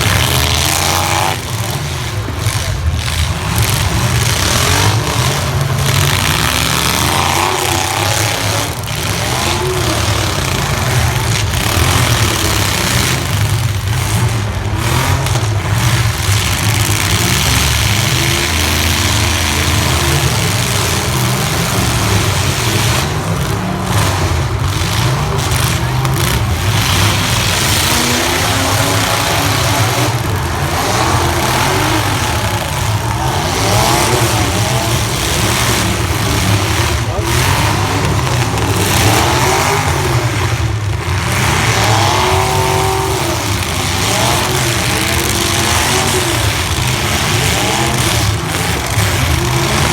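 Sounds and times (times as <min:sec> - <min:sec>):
pickup truck engines revving: 0:00.0 - 0:49.9.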